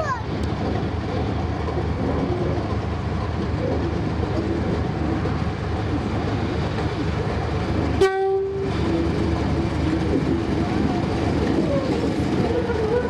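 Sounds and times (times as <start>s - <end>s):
diesel locomotive engine rumbling: 0.0s - 13.0s
locomotive horn blast: 8.0s - 8.7s.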